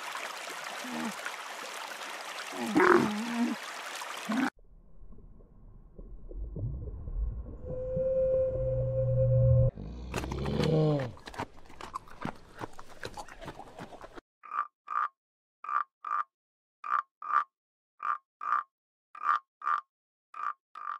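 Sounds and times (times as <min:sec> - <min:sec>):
whale moans and groans: 0:06.6 - 0:11.2
frog croaking: 0:14.4 - 0:20.9.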